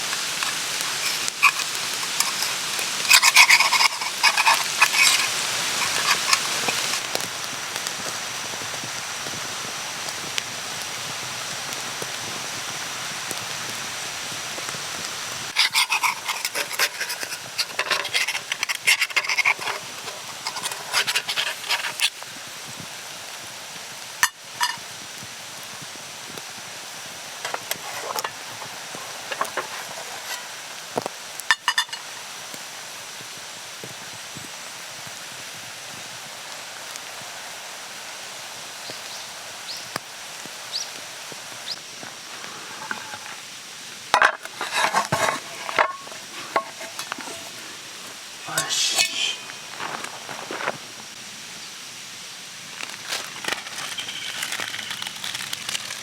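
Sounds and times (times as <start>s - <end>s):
food sizzling in a pan: 0.0s - 56.0s
metal utensils scraping a pan: 0.2s - 7.1s, 15.5s - 22.2s, 24.2s - 24.8s, 27.4s - 30.6s, 31.5s - 32.1s, 42.6s - 43.4s, 44.1s - 47.7s, 48.5s - 49.6s, 53.4s - 55.5s.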